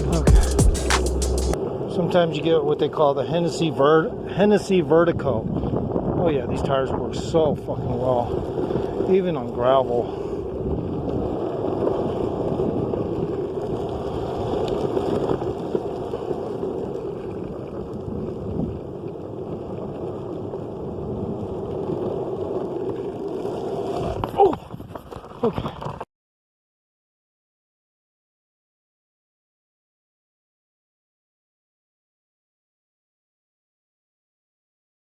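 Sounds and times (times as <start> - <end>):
skateboard wheels rolling on gravel: 0.0 - 26.1.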